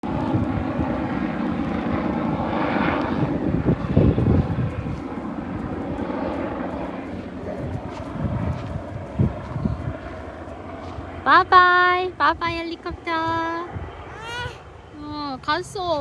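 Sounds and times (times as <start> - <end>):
helicopter flying past: 0.0 - 16.0.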